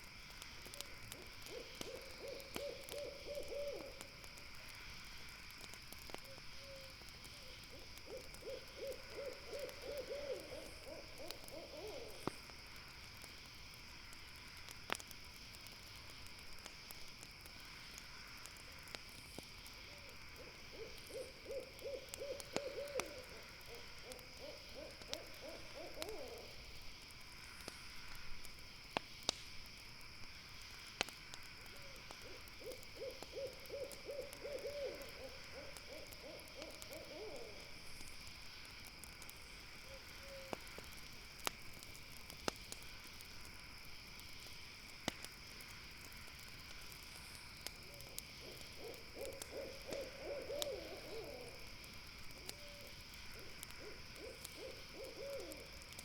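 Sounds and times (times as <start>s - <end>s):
campfire crackling and popping: 0.0s - 56.0s
owl hooting: 1.4s - 4.0s, 6.6s - 12.3s, 20.0s - 26.6s, 31.8s - 37.7s, 39.9s - 40.6s, 47.9s - 51.6s, 52.4s - 55.7s.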